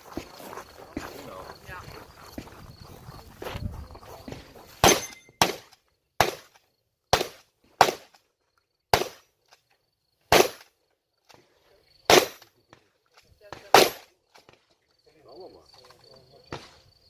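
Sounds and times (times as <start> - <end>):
shotgun shots: 4.8 - 8.2, 8.9 - 9.3, 10.3 - 10.7, 12.1 - 12.4, 13.5 - 14.1.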